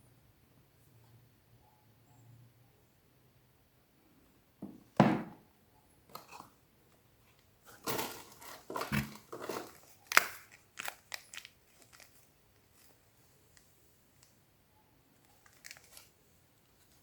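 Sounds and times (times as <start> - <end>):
wrapper crinkling and tearing: 7.7 - 13.0, 15.4 - 16.1.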